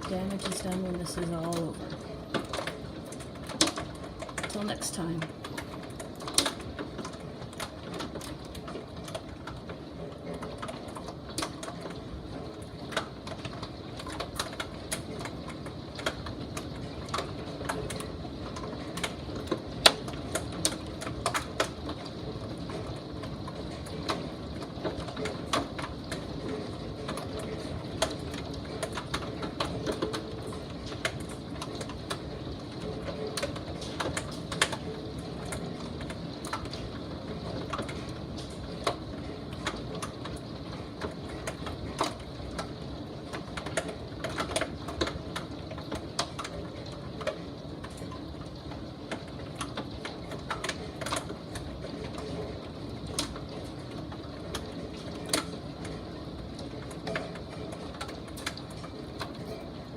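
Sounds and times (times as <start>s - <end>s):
hailstones ticking: 0.0s - 59.9s.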